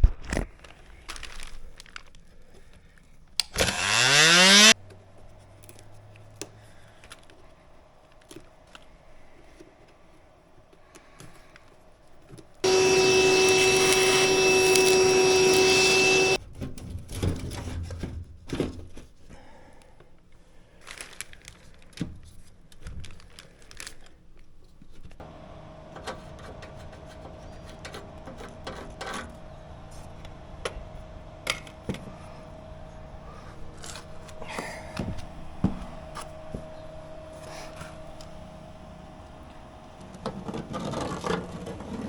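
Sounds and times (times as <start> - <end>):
electric tool motor running: 3.6 - 4.8, 12.6 - 16.4, 25.2 - 42.0.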